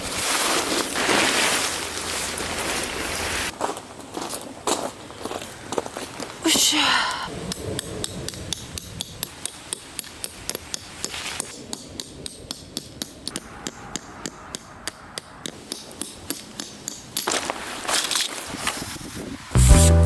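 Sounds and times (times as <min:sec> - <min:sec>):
tent pegs being hammered: 0:07.5 - 0:17.6.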